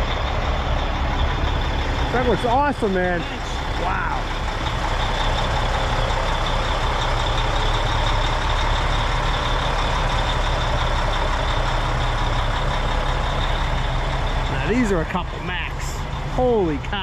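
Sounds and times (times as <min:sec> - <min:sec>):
truck diesel engine idling: 0:00.0 - 0:17.0.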